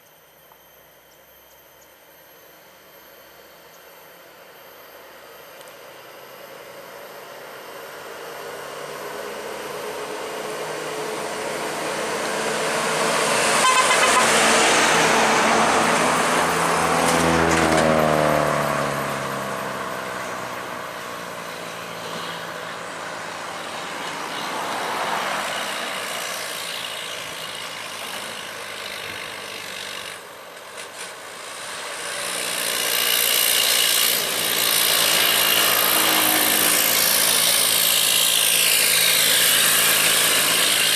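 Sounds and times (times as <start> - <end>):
heavy trucks passing: 9.8 - 40.9.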